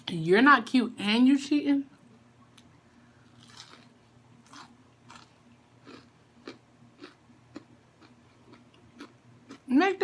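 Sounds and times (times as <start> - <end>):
chewing fried food: 3.3 - 9.7.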